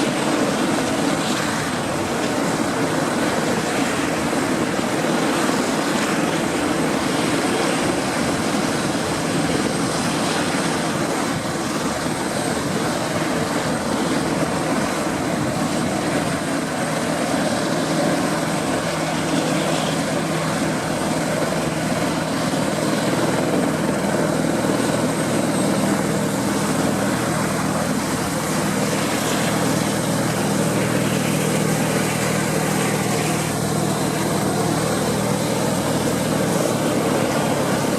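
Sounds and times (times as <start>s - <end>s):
propeller plane engine running: 0.0s - 37.9s.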